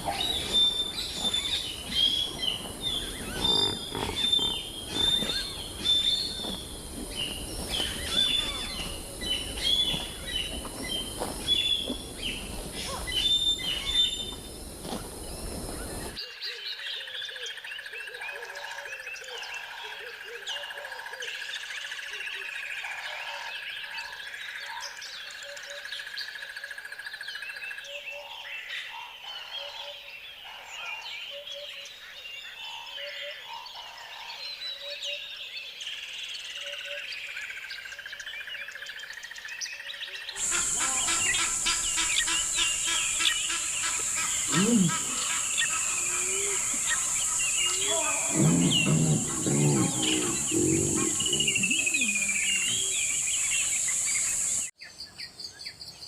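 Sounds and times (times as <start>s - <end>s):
birds chirping: 0.0s - 16.2s, 40.2s - 54.8s
frogs croaking: 0.0s - 23.2s, 36.5s - 54.7s.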